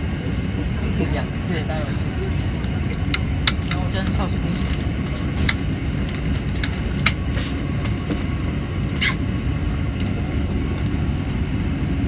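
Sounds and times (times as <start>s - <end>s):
electric train rumble: 0.0s - 12.0s
sharp clicks and ticks: 2.9s - 7.2s.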